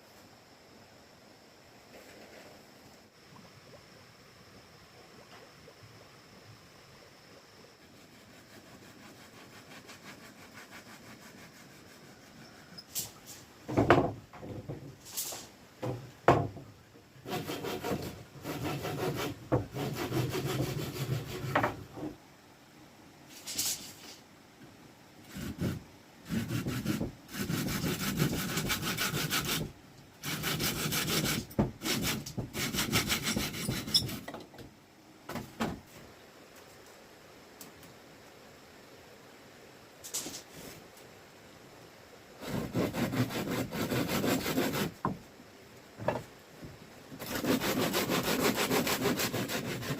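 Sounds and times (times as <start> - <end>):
loud rasping strokes: 17.2 - 21.6, 25.3 - 34.3, 42.4 - 45.0, 47.2 - 49.9
hand saw cutting wood: 17.2 - 21.8, 25.3 - 34.3, 42.4 - 45.1, 47.2 - 49.9.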